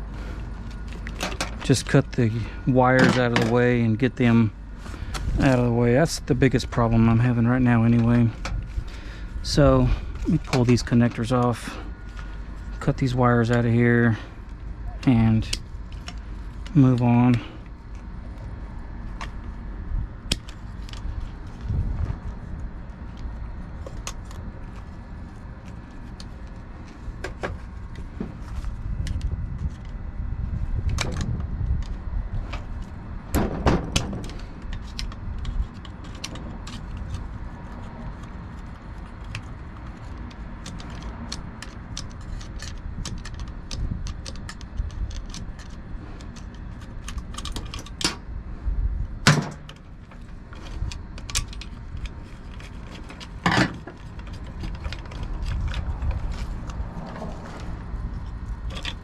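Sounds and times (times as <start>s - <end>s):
low handling rumble: 0.0s - 59.0s
hand tools clicking and clanking: 33.4s - 48.2s, 49.2s - 59.0s.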